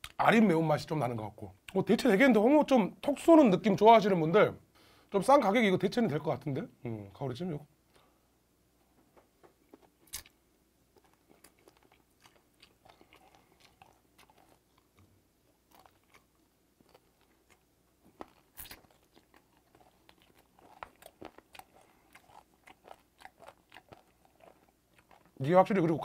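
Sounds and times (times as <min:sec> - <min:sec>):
chewing with soft crunches: 0:09.4 - 0:26.0.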